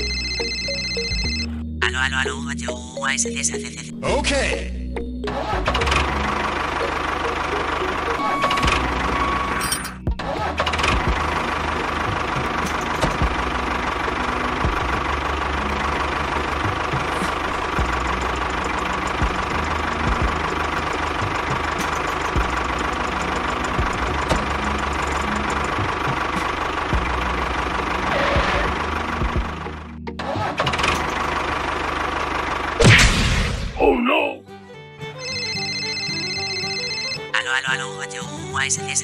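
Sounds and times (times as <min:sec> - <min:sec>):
engine low drone: 0:03.2 - 0:33.8
constant whine: 0:05.6 - 0:33.8.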